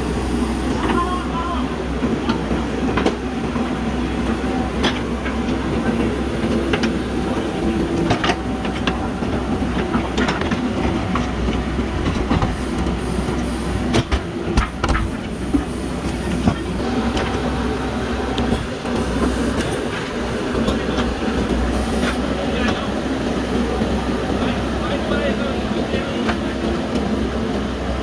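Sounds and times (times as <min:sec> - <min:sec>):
diesel engine running: 0:00.0 - 0:28.0
digging machinery knocks and clanks: 0:07.9 - 0:23.0.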